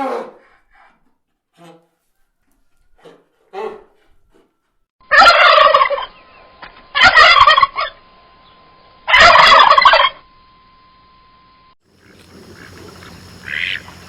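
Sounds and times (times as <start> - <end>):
farm bird calling: 5.0 - 10.2, 11.9 - 14.0.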